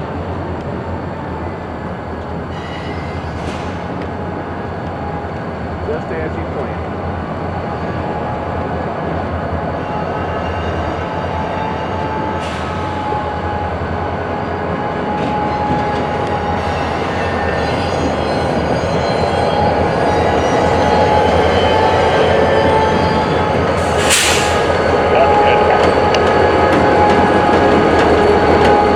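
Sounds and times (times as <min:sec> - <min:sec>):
freight cars rumbling: 0:22.4 - 0:28.9.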